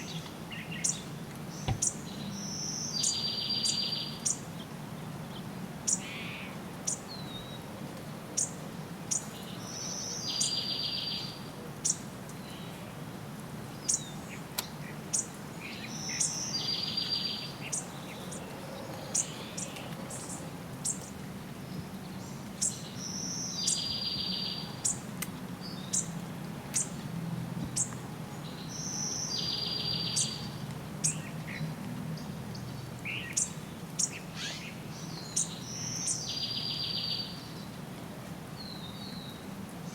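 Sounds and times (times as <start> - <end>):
bird trill: 33.2 - 37.4.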